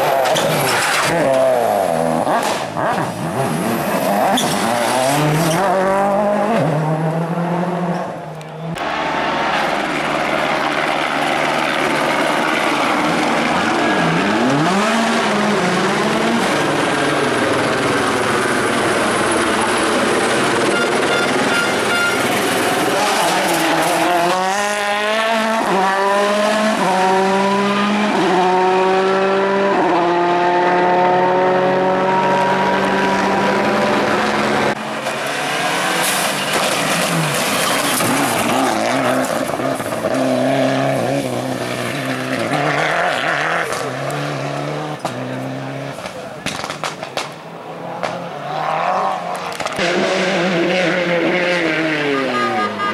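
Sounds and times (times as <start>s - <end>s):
rally car engine revving: 0.0s - 52.9s.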